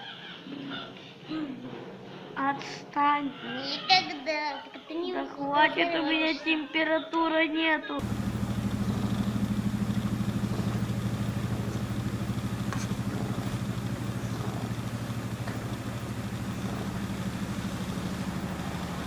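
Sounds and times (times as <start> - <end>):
cat purring: 8.0 - 19.0.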